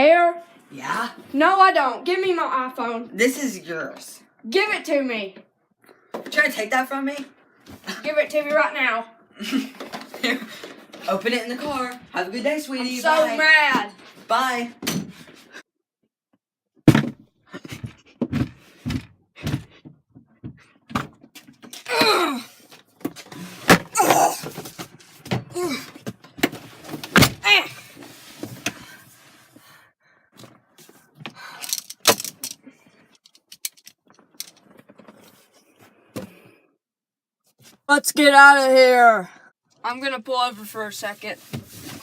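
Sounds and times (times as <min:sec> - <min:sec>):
knocks and thunks: 0:16.8 - 0:21.3.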